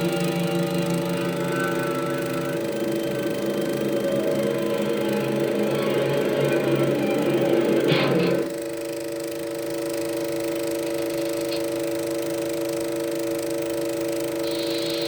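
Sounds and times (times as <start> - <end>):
held three-tone chord: 0.0 - 8.7.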